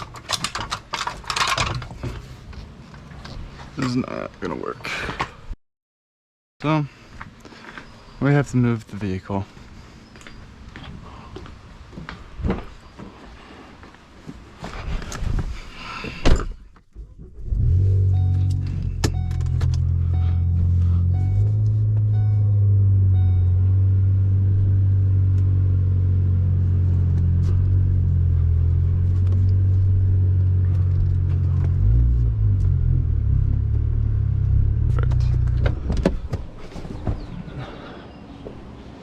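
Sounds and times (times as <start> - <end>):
car engine rumbling: 16.9 - 38.9
car chime beeping: 18.1 - 23.7.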